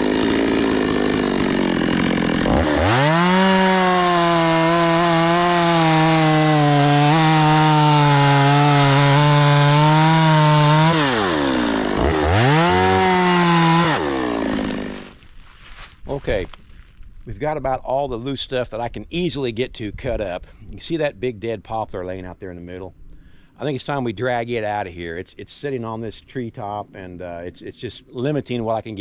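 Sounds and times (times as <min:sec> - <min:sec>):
chainsaw revving: 0:00.0 - 0:15.2.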